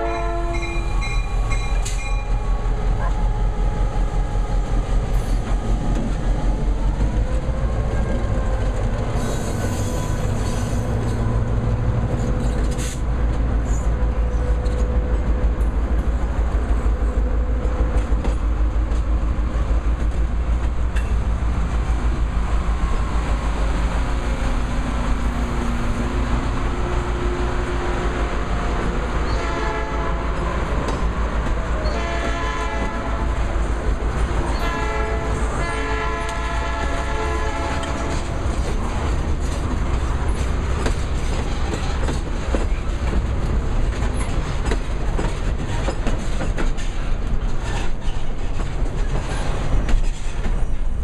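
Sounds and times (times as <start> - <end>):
train wheels clattering on rails: 0.0 - 2.5, 4.7 - 27.1, 28.4 - 51.0
train horn blasts: 0.0 - 3.9, 28.5 - 30.6, 31.8 - 33.5, 34.5 - 38.4.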